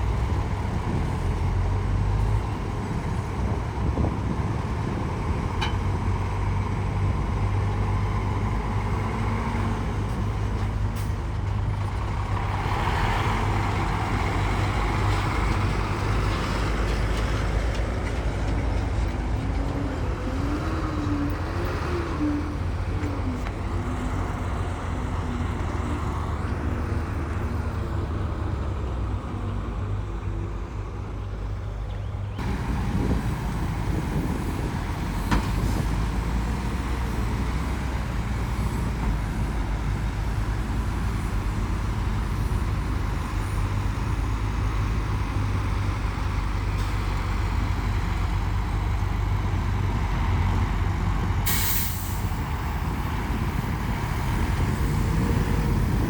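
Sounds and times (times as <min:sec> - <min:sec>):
heavy diesel machinery running: 0:00.0 - 0:56.0
air brake hiss: 0:51.5 - 0:52.6.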